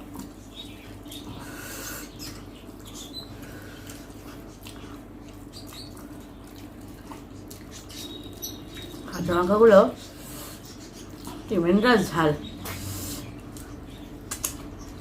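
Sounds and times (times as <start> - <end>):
steady low hum: 0.0 - 15.0
chewing and lip-smacking: 2.2 - 9.1, 10.5 - 11.5, 12.4 - 15.0
small wet clicks: 13.5 - 14.7.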